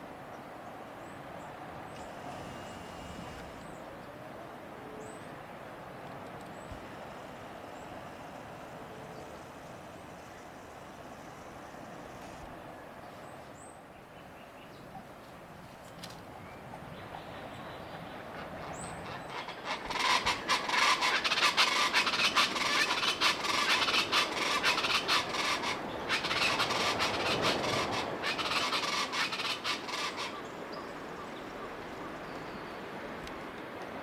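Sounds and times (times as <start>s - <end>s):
birds calling rapidly: 16.9s - 32.6s.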